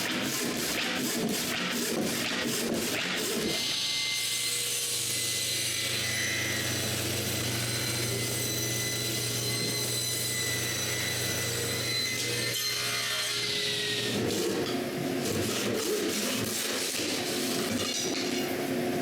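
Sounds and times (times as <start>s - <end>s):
power saw cutting wood: 0.0s - 18.0s.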